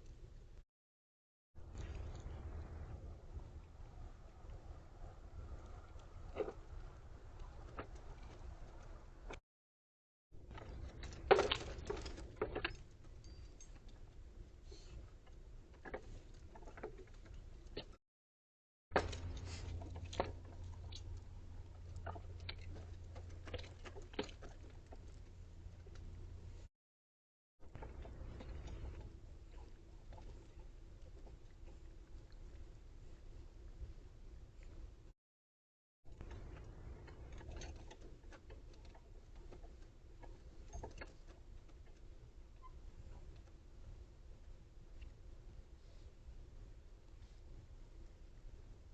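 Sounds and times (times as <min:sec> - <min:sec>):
faint low hum: 0:01.6 - 0:09.4, 0:27.7 - 0:35.1
animals crunching seeds: 0:19.0 - 0:26.2, 0:27.8 - 0:32.7.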